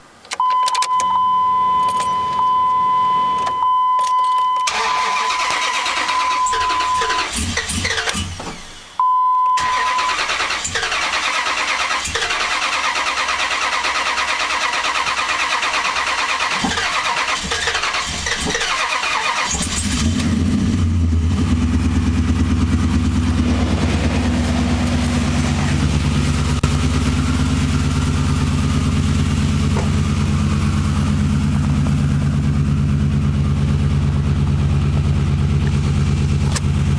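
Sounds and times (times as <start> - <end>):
starter cranking engine: 4.7 - 8.8, 9.6 - 31.4
truck engine idling: 9.8 - 36.9.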